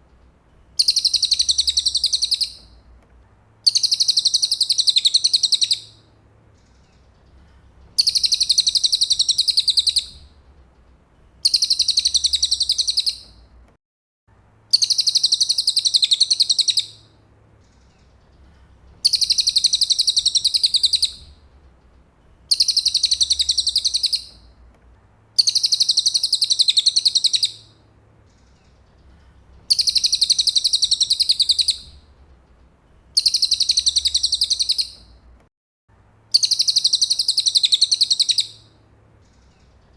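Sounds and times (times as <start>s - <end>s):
faint low hum: 0.0s - 36.7s
high-pitched bird trill: 0.8s - 2.6s, 11.5s - 13.2s, 14.8s - 17.0s, 19.1s - 21.2s, 22.5s - 24.4s, 25.4s - 27.7s, 29.7s - 32.0s, 33.2s - 35.1s, 36.4s - 38.6s.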